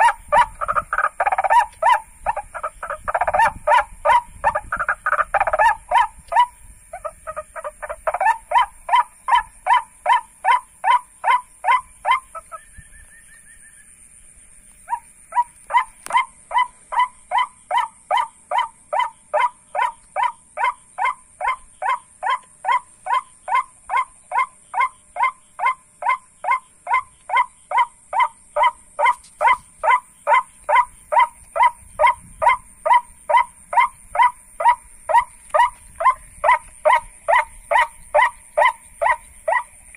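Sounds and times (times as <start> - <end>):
waterhen kwak calls: 0.0 - 14.0, 14.8 - 39.9.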